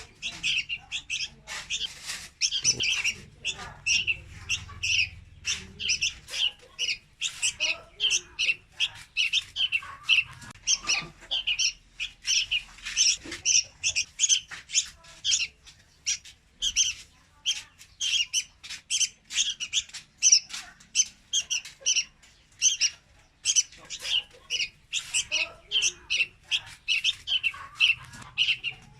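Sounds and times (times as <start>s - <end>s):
bird chirping rapidly: 0.0s - 28.9s.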